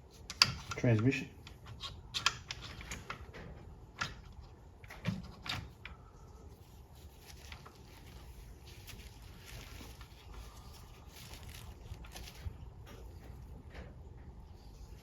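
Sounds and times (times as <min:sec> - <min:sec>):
small parts clicking and knocking: 0:00.1 - 0:06.0.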